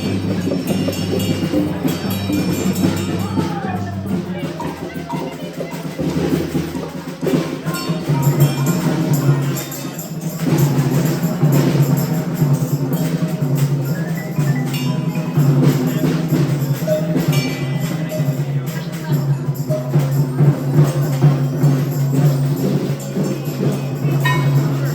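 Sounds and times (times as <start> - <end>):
short ringing percussion notes: 0.0 - 24.9.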